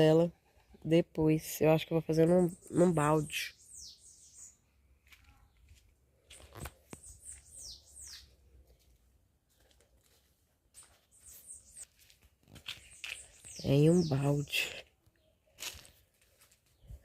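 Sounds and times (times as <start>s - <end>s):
small bird chirping: 2.3s - 8.7s, 10.7s - 15.8s.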